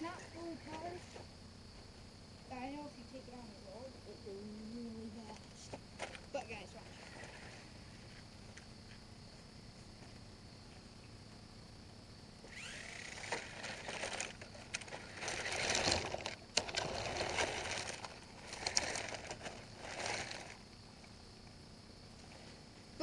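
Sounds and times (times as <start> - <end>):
toy car wheels rattling and scraping: 12.5 - 20.6.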